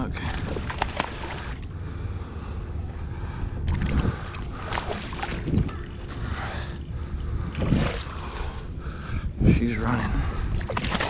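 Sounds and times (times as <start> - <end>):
wind rumbling on microphone: 0.0 - 1.7, 2.5 - 11.0
water sloshing around kayak: 0.2 - 1.7, 3.6 - 8.7.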